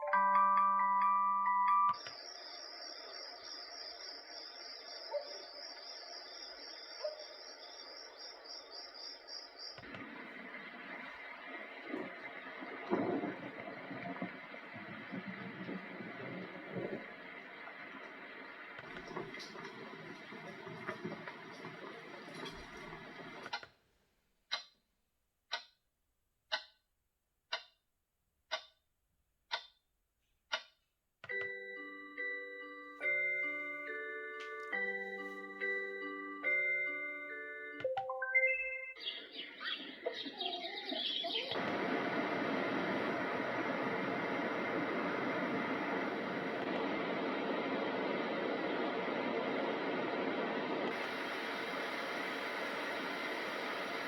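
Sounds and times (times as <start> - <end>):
chiming lullaby tune: 0.0 - 2.1, 31.3 - 39.3
pulsing cricket trill: 2.0 - 9.7
bird-like chirps: 2.0 - 9.9, 38.4 - 41.7
noisy white noise sound: 9.8 - 23.6, 40.1 - 54.0
clock ticking: 24.5 - 24.8, 25.5 - 25.8, 26.5 - 26.8, 27.5 - 27.8, 28.5 - 28.8, 29.5 - 29.8, 30.5 - 31.6.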